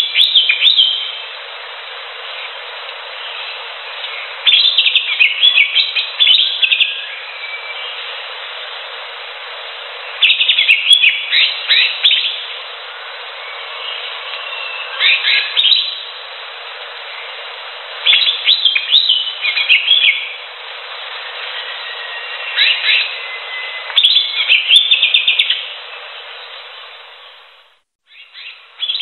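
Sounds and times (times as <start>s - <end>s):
bird singing high chirps: 0.0s - 1.3s, 3.2s - 8.2s, 10.0s - 12.5s, 13.4s - 16.1s, 18.0s - 20.4s, 21.1s - 26.1s, 28.1s - 29.0s
steady background hiss: 0.0s - 29.0s.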